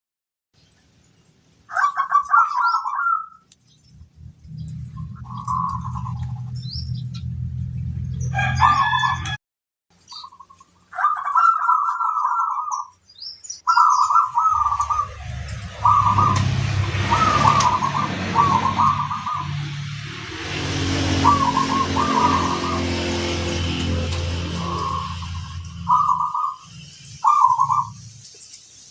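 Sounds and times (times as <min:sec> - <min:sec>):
dove trilled coos: 0:01.7 - 0:03.4, 0:05.1 - 0:06.6, 0:10.2 - 0:12.9, 0:13.6 - 0:19.6, 0:20.4 - 0:28.1
low hum: 0:03.8 - 0:09.4, 0:14.2 - 0:28.2.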